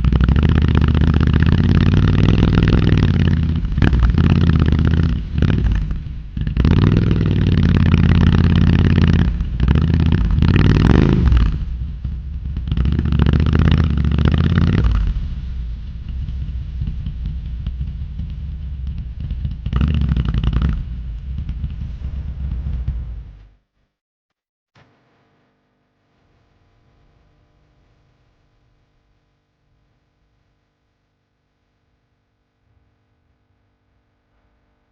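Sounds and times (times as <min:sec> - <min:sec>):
wind rush on microphone: 0:00.0 - 0:23.4
motorcycle engine and exhaust: 0:00.0 - 0:23.6.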